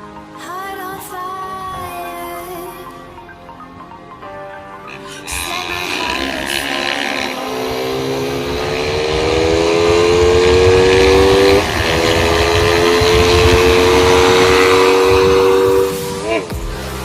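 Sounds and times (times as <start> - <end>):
motorcycle engine accelerating: 4.9 - 16.5.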